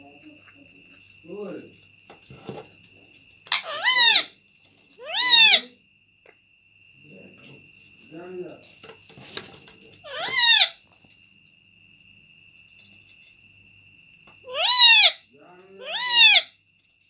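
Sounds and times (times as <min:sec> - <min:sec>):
parrot squawking: 0:03.5 - 0:04.4, 0:05.0 - 0:05.8, 0:10.0 - 0:10.8, 0:14.4 - 0:16.5.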